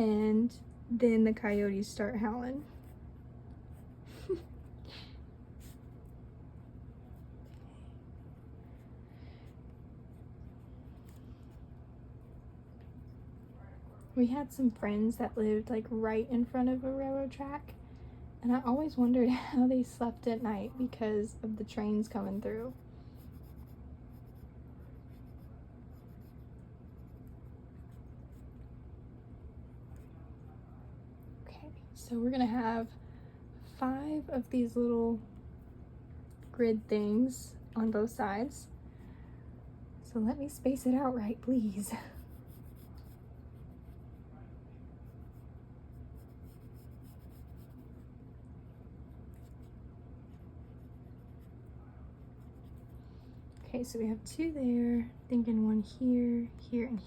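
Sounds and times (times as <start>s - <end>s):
steady low hum: 0.0s - 57.0s
pencil scratching on paper: 18.6s - 28.6s, 41.9s - 44.2s, 45.0s - 48.0s, 48.8s - 53.0s.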